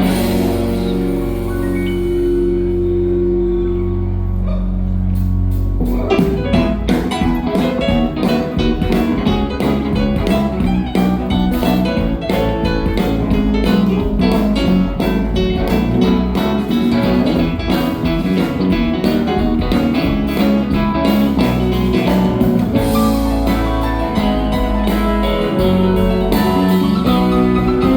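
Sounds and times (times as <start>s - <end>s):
held chord: 0.0s - 6.2s
busy guitar lines: 0.0s - 27.9s
live band playing instrumental: 0.0s - 27.9s.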